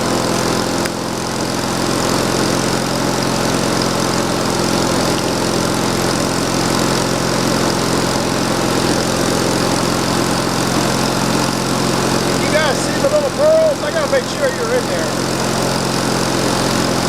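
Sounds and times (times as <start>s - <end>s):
engine droning steadily: 0.0s - 17.0s.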